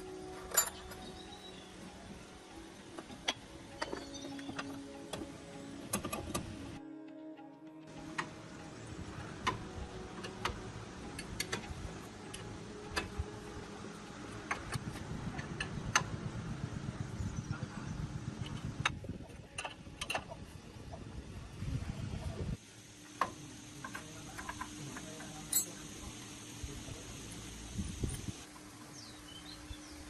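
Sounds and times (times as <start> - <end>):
steady low hum: 7.9 - 30.0.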